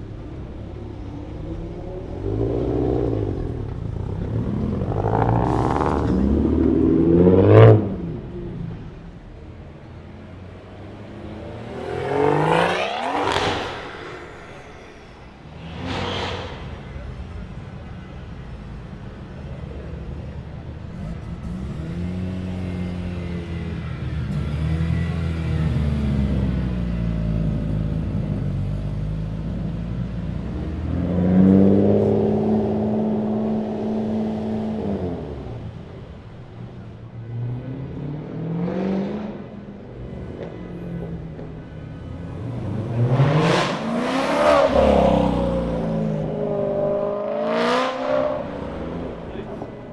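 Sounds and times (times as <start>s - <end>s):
low engine rumble: 0.0s - 37.9s
car accelerating: 0.0s - 49.9s
car accelerating past: 0.4s - 9.0s, 10.2s - 18.6s, 20.8s - 49.9s.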